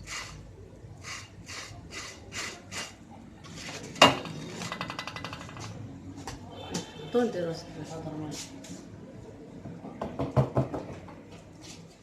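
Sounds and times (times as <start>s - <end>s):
rhythmic utensil scraping: 1.0s - 5.6s.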